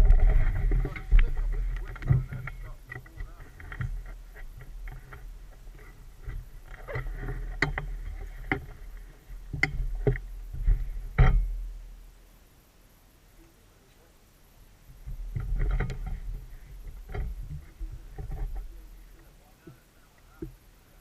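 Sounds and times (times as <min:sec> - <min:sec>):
knocks and bumps: 0:00.0 - 0:11.8, 0:15.0 - 0:19.8
atv engine rumbling: 0:00.0 - 0:12.2, 0:14.9 - 0:20.7.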